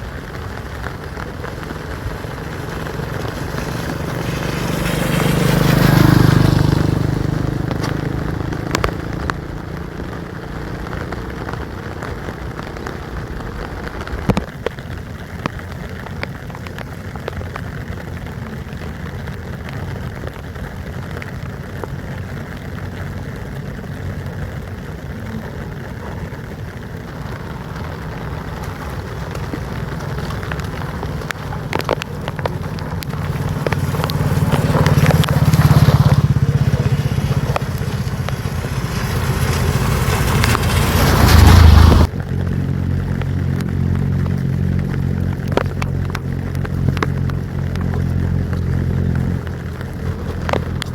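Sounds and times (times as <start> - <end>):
vehicle passing: 0.0 - 14.1, 22.3 - 50.9
water drips: 0.0 - 41.5
steady rain: 0.0 - 50.9.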